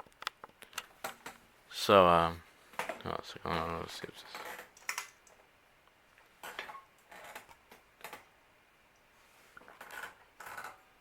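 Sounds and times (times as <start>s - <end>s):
faint clicks and light knocks: 0.0s - 1.4s.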